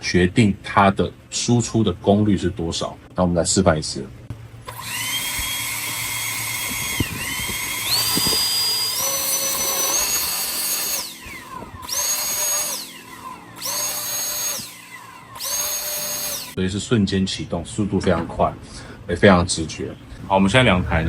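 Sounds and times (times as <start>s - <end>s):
blower high whine: 4.3s - 16.6s.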